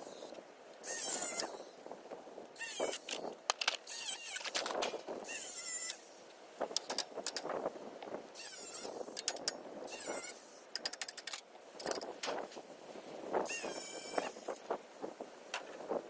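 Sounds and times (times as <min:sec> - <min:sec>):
ratchet clicks: 0:02.6 - 0:06.0, 0:08.4 - 0:12.1.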